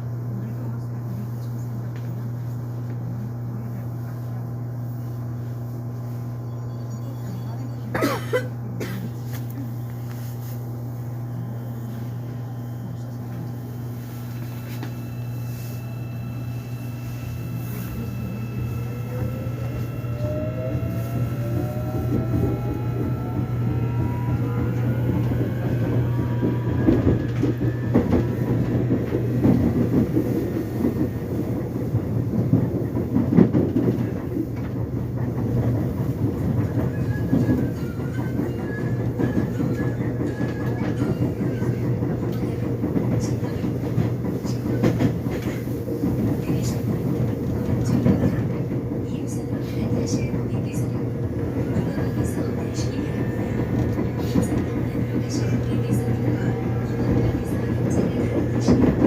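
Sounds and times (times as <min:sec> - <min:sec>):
steady low hum: 0:00.0 - 0:36.4
wheel rumble and rail clatter: 0:00.6 - 0:59.0
train motor whine: 0:09.3 - 0:34.8, 0:51.1 - 0:59.0.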